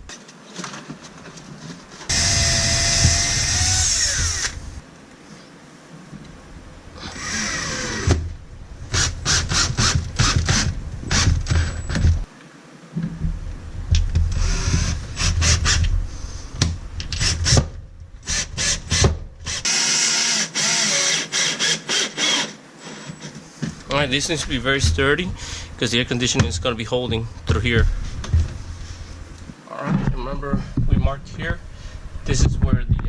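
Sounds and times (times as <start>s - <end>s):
power drill running: 2.1s - 4.8s, 7.0s - 8.2s, 18.2s - 22.6s.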